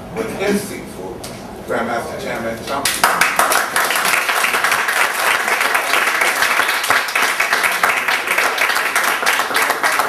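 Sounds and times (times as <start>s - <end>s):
people applauding: 2.8s - 10.0s.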